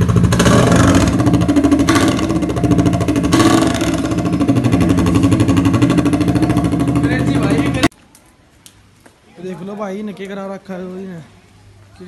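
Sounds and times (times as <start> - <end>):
exhaust burble: 0.0 - 7.9
scooter engine revving: 0.0 - 7.9.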